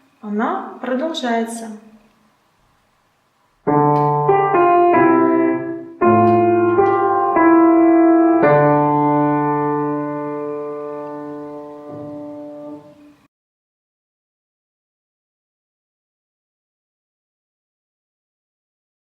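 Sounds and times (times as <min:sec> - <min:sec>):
piano playing slow chords: 0:03.6 - 0:13.3.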